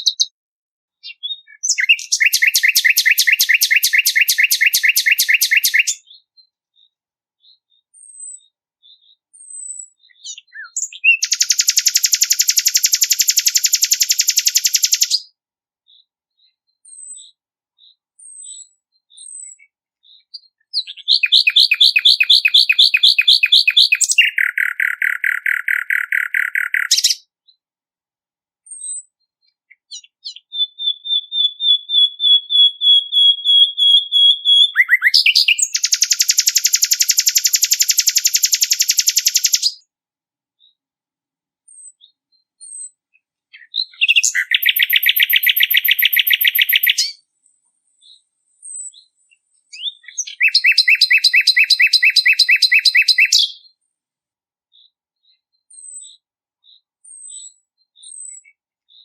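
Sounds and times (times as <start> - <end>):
songbird trilling: 0.0 - 0.4, 1.0 - 15.3, 16.8 - 27.3, 29.7 - 39.8, 41.7 - 47.2, 49.7 - 53.8.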